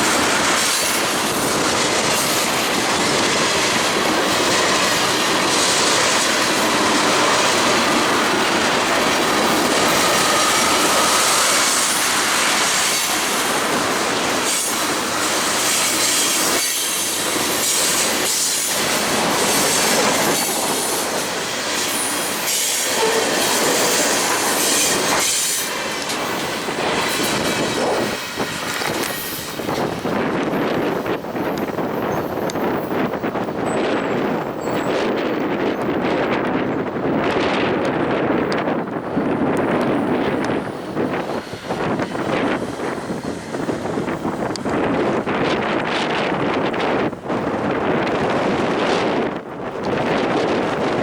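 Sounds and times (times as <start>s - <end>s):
train wheels clacking over rail joints: 0.0s - 38.7s.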